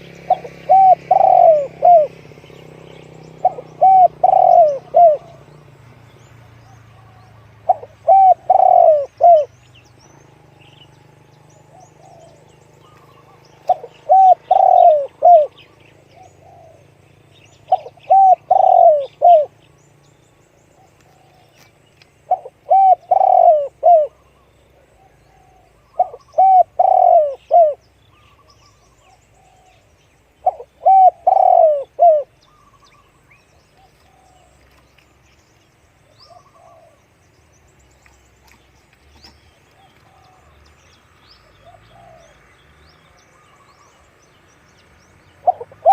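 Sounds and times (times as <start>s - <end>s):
dove cooing: 0.0s - 5.7s, 6.8s - 17.0s, 17.6s - 19.6s, 22.3s - 33.2s, 33.8s - 34.8s, 36.1s - 37.1s, 39.2s - 40.7s, 41.5s - 42.4s, 45.4s - 45.9s.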